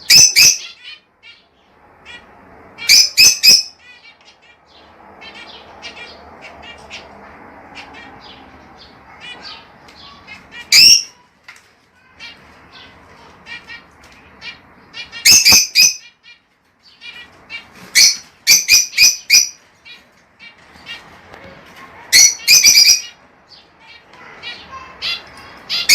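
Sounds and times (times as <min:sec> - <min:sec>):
loud shrill bird calls: 0:00.0 - 0:11.2, 0:14.4 - 0:20.0, 0:22.2 - 0:25.9
lovebirds chattering: 0:00.0 - 0:25.9.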